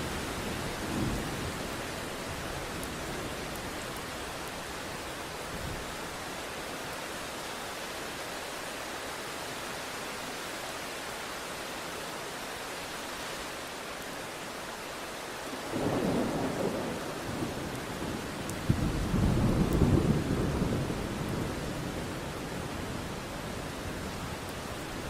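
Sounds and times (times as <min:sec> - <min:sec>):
steady rain falling: 0:00.0 - 0:25.0
low rumble of thunder: 0:15.7 - 0:23.2.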